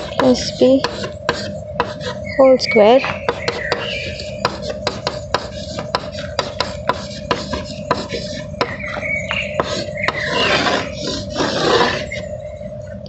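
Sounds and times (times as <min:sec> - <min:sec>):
writing on board: 0:00.0 - 0:02.2, 0:03.0 - 0:09.0, 0:09.6 - 0:12.2
loud scraping: 0:03.0 - 0:12.3.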